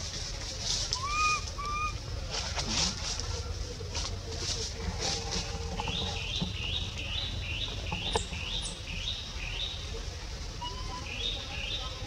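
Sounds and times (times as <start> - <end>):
bird chirping: 5.8 - 9.9.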